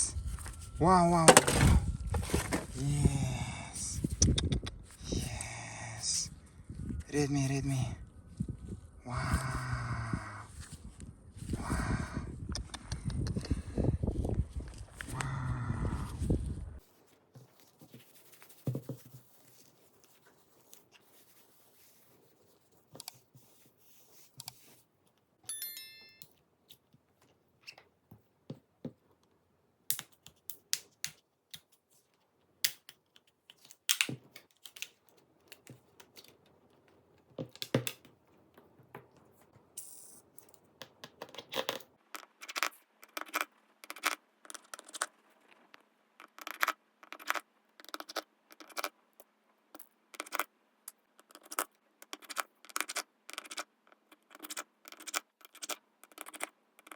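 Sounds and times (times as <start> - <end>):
hand tools clicking and tapping: 33.9 - 39.6, 40.4 - 45.0.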